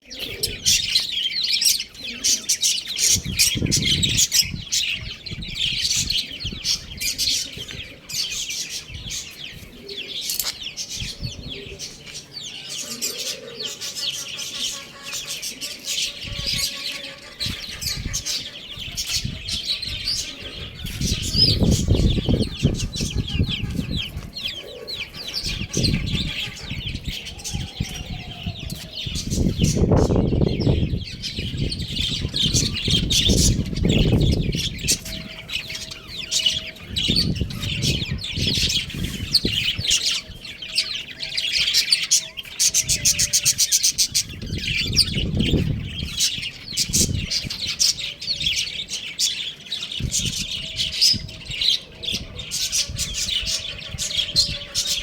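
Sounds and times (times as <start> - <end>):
chicks chirping: 0.1 - 55.0.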